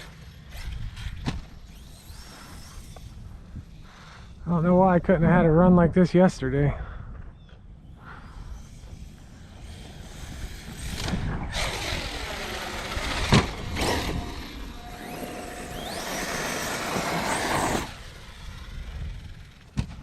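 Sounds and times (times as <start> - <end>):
electric motor whine: 8.5 - 19.9
tyres rolling: 11.8 - 18.7.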